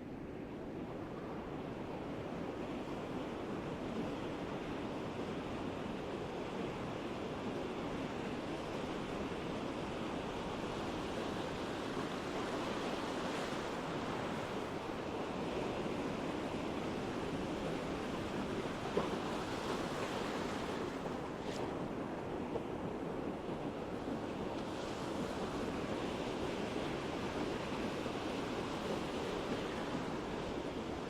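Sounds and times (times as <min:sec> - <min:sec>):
ocean surf breaking on beach: 0:10.1 - 0:23.0, 0:23.9 - 0:31.0.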